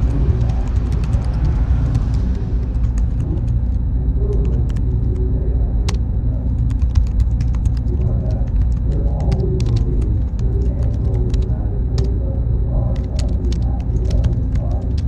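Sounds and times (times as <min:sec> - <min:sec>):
deep rumble of machines: 0:00.0 - 0:15.0
thin high whine: 0:00.0 - 0:15.0
sharp clicks: 0:05.8 - 0:12.1.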